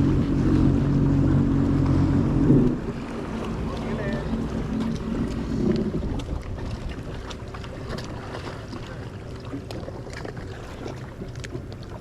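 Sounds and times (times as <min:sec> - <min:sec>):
wind buffeting microphone: 0:00.0 - 0:08.8, 0:10.5 - 0:12.0
jet ski engine rumbling: 0:00.0 - 0:12.0.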